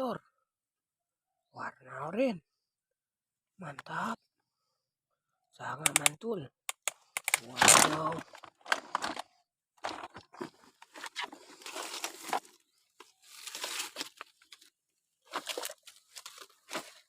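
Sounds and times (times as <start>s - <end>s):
hands rummaging crinkly material: 7.4s - 9.2s, 9.8s - 17.0s.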